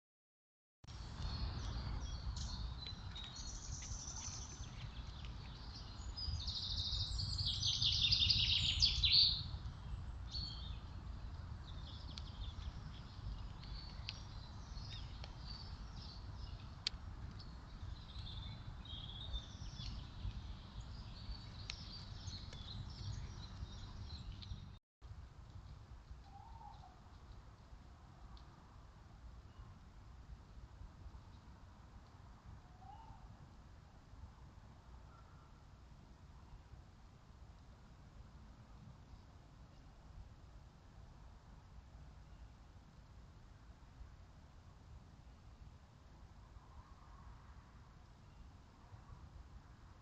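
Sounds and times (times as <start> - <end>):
songbirds singing: 1.0 - 24.8.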